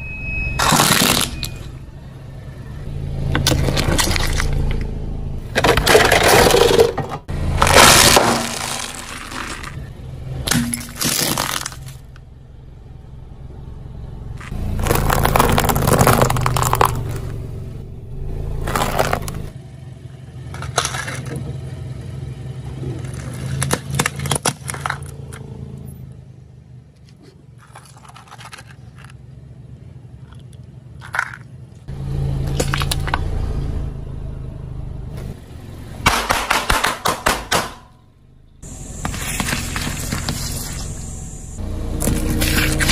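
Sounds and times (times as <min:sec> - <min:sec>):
car engine running low: 0:00.0 - 0:42.9
objects crunching under tyre: 0:00.6 - 0:01.7, 0:03.3 - 0:12.2, 0:14.4 - 0:17.6, 0:18.5 - 0:19.6, 0:22.8 - 0:25.5, 0:27.0 - 0:29.2, 0:32.4 - 0:33.3, 0:38.6 - 0:42.9.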